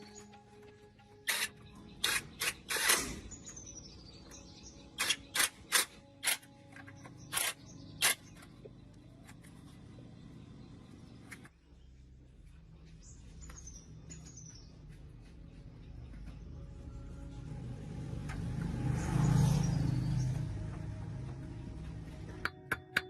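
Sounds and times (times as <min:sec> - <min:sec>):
sharp clicking and hissing bursts: 0:01.3 - 0:03.3.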